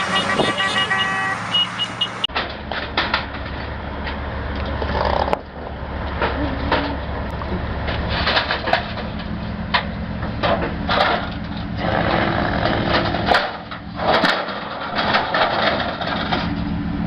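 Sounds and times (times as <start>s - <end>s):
heavy vehicle engine running: 0.0s - 17.0s
sharp knocks and cracks: 2.3s - 6.9s, 7.8s - 11.7s, 12.6s - 16.7s.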